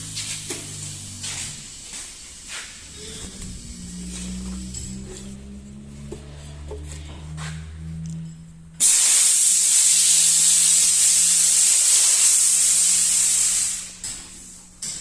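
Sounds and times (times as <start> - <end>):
low steady hum: 0.0 - 8.8
loud hiss of escaping air: 8.8 - 14.0.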